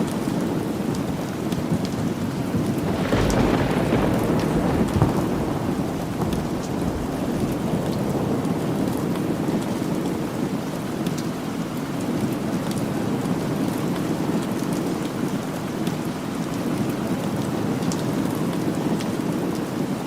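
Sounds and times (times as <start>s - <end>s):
steady rain: 0.0s - 20.0s
rolling thunder rumble: 1.7s - 10.3s.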